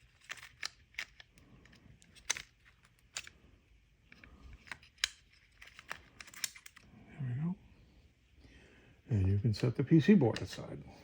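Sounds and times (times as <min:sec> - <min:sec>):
small plastic and metal parts clicking: 0:00.0 - 0:03.4, 0:04.1 - 0:06.9.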